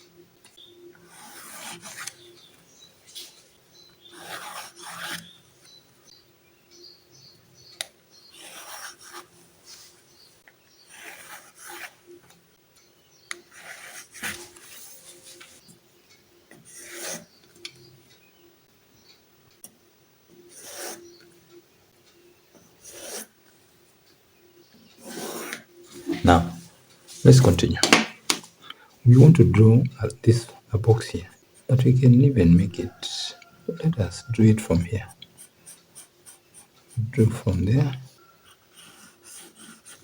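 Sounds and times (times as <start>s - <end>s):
pencil scratching on paper: 1.1s - 2.1s, 4.1s - 5.2s, 8.4s - 9.4s, 10.9s - 12.0s, 13.5s - 15.3s, 16.7s - 17.3s, 20.5s - 21.0s, 22.8s - 23.3s, 25.0s - 26.6s, 32.9s - 37.6s, 38.2s - 40.0s.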